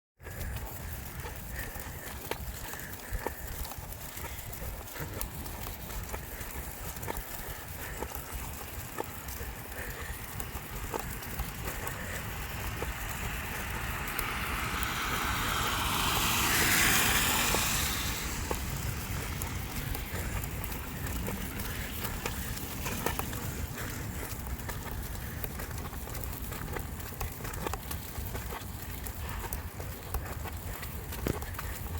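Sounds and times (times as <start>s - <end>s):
low rumble: 11.1s - 24.2s
car passing by: 11.3s - 23.7s.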